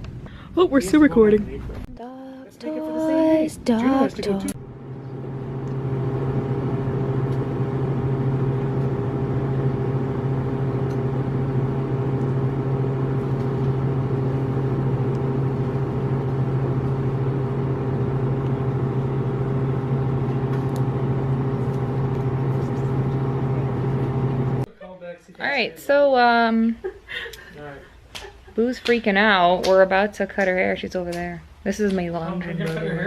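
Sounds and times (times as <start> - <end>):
steady motor hum: 1.9 - 24.7.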